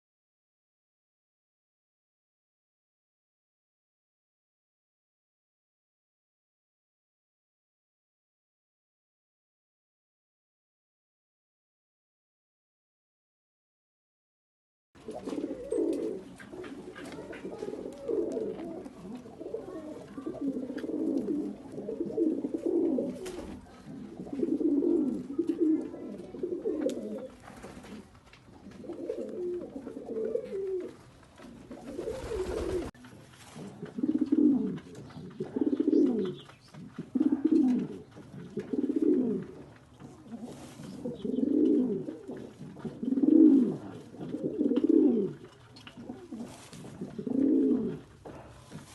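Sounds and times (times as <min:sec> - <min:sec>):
pigeons cooing: 0:15.0 - 0:32.9, 0:33.5 - 0:48.9.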